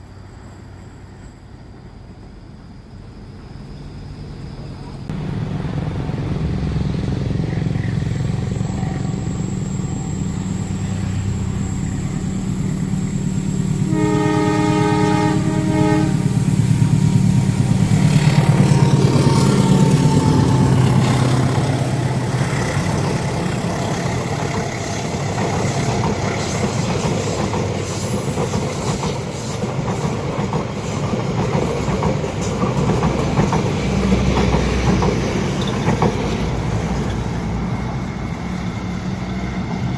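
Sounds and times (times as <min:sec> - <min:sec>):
diesel locomotive engine: 0:00.0 - 0:39.9
train wheels on rails: 0:00.0 - 0:39.9
train horn blast: 0:13.6 - 0:25.3.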